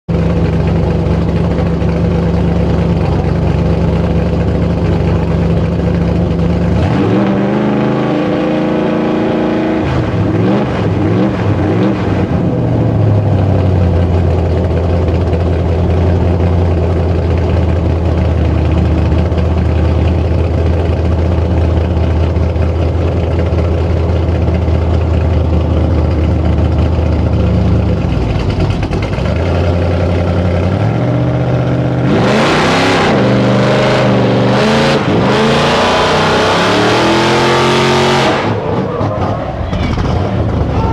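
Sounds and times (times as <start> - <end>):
truck engines revving under load: 6.6 - 14.2, 26.5 - 40.9.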